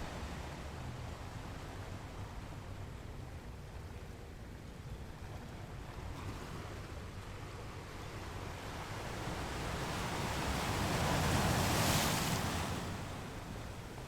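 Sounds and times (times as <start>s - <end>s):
ocean waves on shore: 5.9s - 14.0s.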